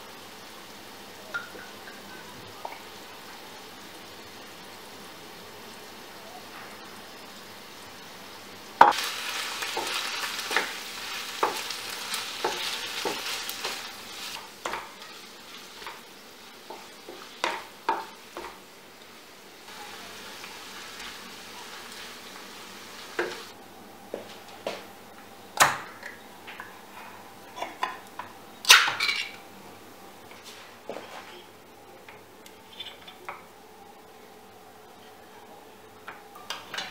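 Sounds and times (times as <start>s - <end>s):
food sizzling in a pan: 0.0s - 23.6s.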